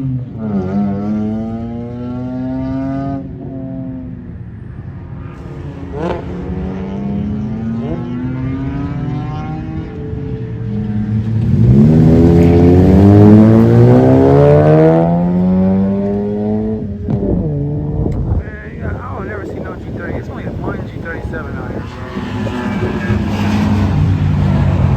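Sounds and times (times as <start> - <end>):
race cars at full throttle: 0.0 - 24.9.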